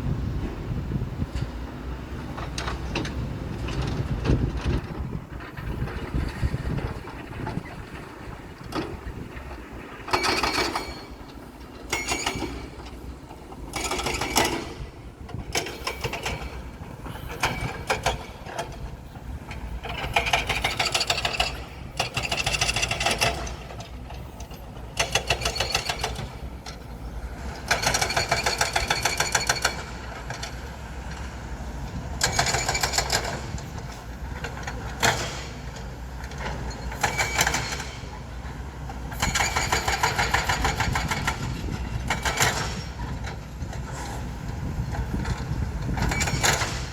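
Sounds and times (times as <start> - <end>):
low engine rumble: 0.0 - 27.8.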